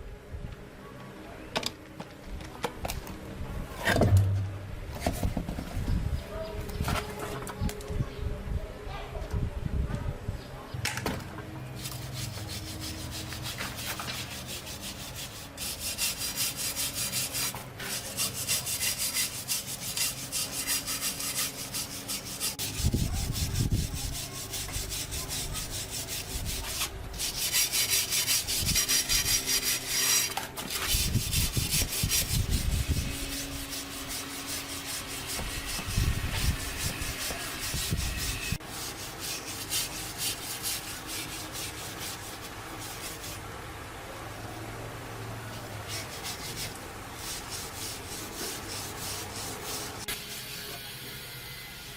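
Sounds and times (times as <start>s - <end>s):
hand sanding strokes: 11.7s - 43.4s, 45.8s - 50.8s.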